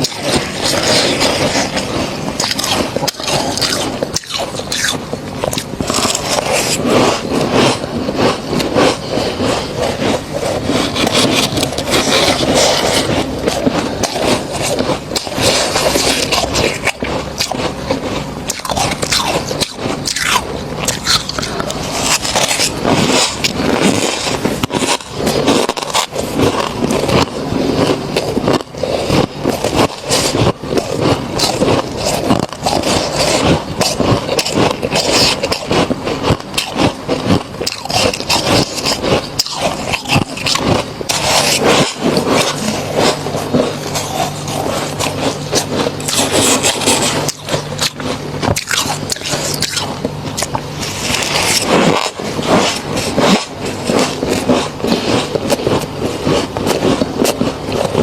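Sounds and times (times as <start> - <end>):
frost being scraped and crunched: 0.0 - 58.0.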